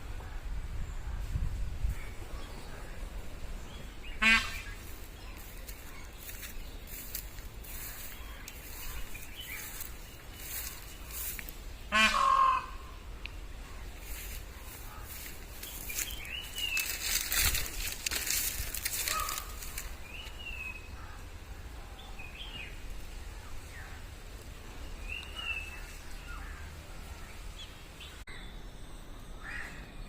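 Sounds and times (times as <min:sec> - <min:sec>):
birds chirping: 0:00.0 - 0:30.0
rustling: 0:14.0 - 0:20.3.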